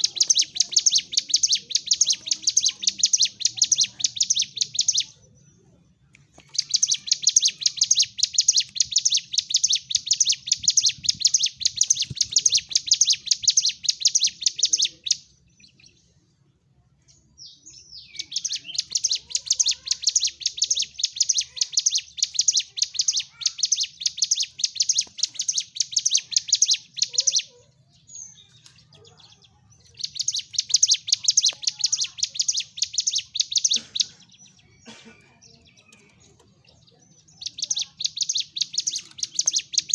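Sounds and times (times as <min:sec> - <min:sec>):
bird shrill rapid chattering: 0:00.0 - 0:05.2, 0:06.4 - 0:15.3, 0:18.1 - 0:27.6, 0:29.9 - 0:34.3, 0:37.3 - 0:39.9.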